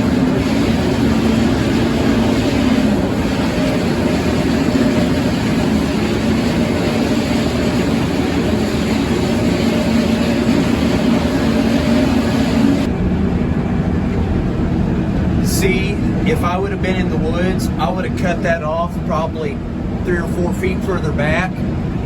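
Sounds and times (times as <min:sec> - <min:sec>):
sawmill machinery running: 0:00.0 - 0:22.0.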